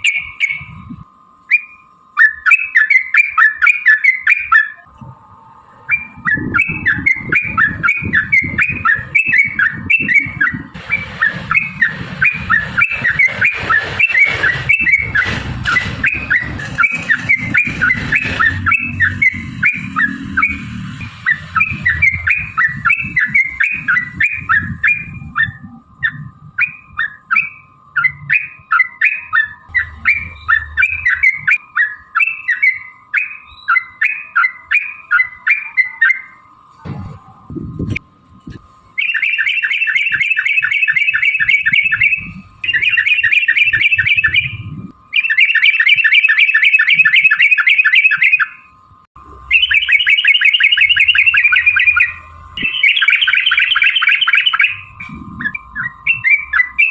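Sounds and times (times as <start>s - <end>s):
bird singing chattering notes: 0.0s - 5.0s, 5.8s - 36.6s, 38.9s - 56.9s
low rumble: 4.9s - 27.0s, 29.6s - 31.6s.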